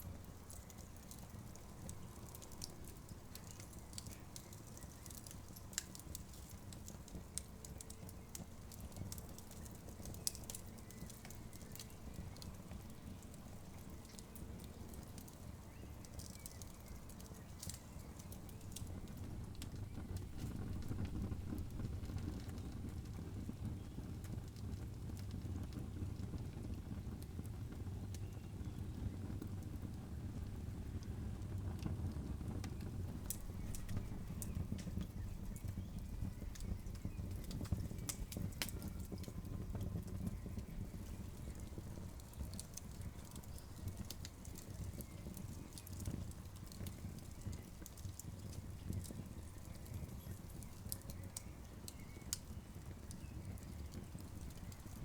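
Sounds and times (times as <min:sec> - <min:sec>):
campfire crackling: 0:00.0 - 0:55.0
low rumble of flames: 0:00.0 - 0:55.0
loud fire pops: 0:30.8 - 0:55.0.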